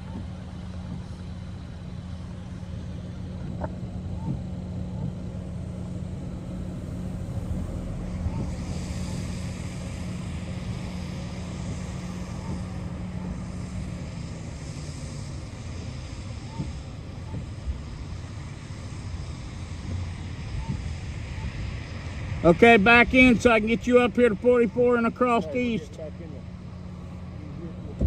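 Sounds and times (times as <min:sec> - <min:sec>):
vehicle engine and road drone: 0:00.0 - 0:28.0
higher hiss: 0:05.1 - 0:27.2.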